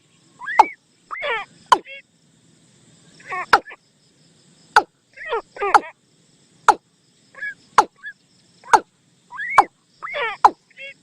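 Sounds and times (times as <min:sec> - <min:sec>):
bird decoy call: 0:00.4 - 0:02.0, 0:07.3 - 0:11.0.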